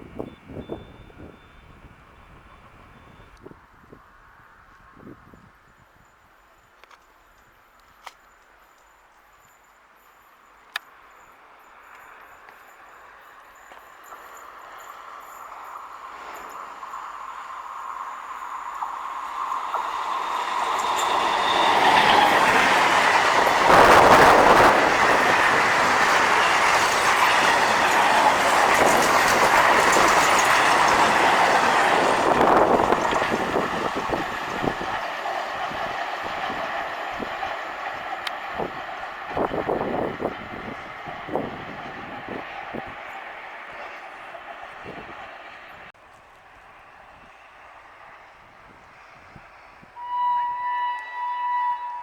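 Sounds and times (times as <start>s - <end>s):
train wheel squeal: 0.0s - 3.7s, 4.8s - 45.9s, 46.8s - 52.0s
train rumbling: 0.0s - 52.0s
wheels clicking over rail joints: 10.6s - 49.8s.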